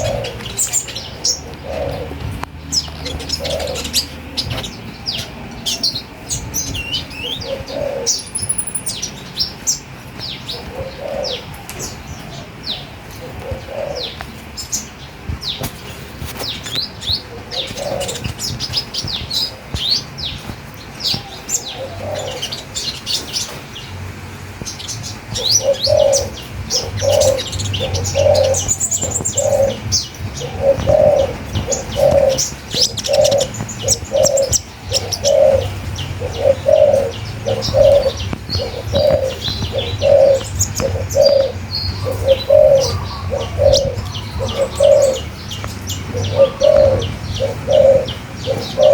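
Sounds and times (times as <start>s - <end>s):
songbirds chirping: 0.0s - 48.9s
lower bird call: 2.8s - 9.2s.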